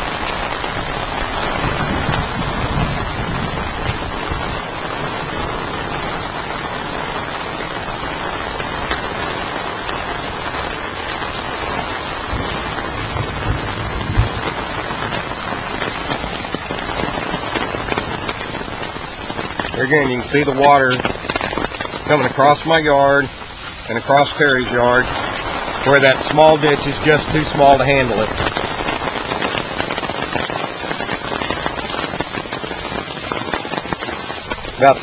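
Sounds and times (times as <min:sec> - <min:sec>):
heavy rain: 0:00.0 - 0:35.0
low thump: 0:12.3 - 0:14.8.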